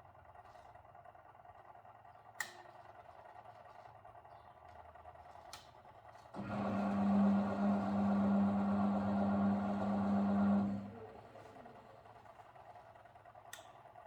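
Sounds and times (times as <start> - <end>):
washing machine motor humming: 6.4 - 12.4.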